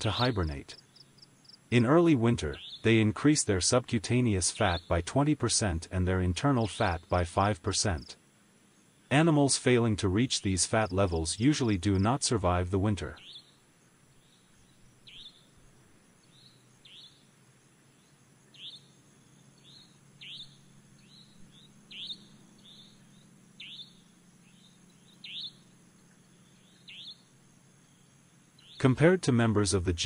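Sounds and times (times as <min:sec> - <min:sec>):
bird chirping faintly: 0:00.0 - 0:03.2, 0:10.8 - 0:29.1
faint low hum: 0:00.0 - 0:30.0.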